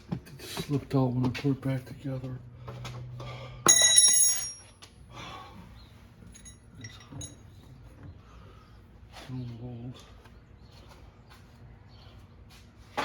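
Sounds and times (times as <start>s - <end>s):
metal strike ringing bell-like: 3.7s - 4.6s
faint metallic clinks: 3.7s - 4.8s, 6.3s - 7.4s.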